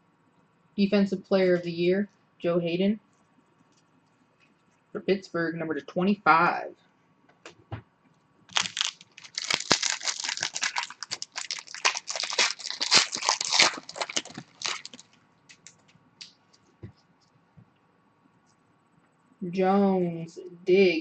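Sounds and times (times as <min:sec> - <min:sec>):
wrapper tearing and crinkling: 0:08.5 - 0:15.8.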